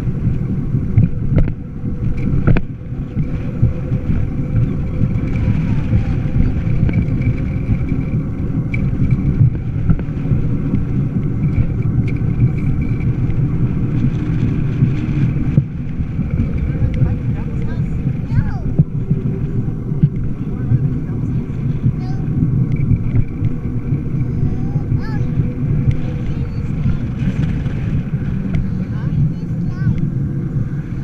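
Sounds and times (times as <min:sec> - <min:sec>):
faint steady whine: 0:00.0 - 0:31.0
road and wind noise: 0:00.0 - 0:31.0.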